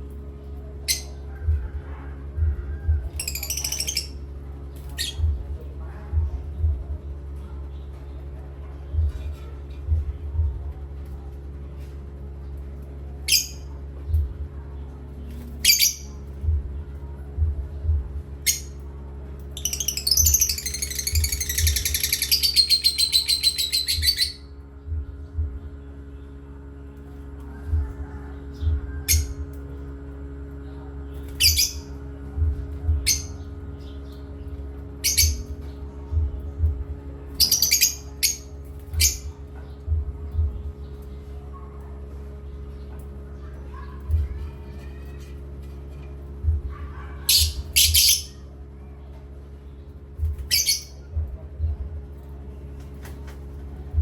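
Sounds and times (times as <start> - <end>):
steady low hum: 0.0 - 54.0
parrot squawking: 19.6 - 24.5, 47.0 - 48.4, 50.5 - 51.0.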